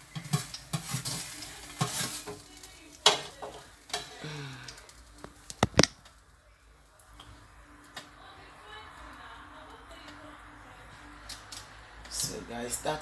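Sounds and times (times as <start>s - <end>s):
utensil stirring and scraping pan: 0.0s - 4.2s
food sizzling: 0.0s - 12.0s.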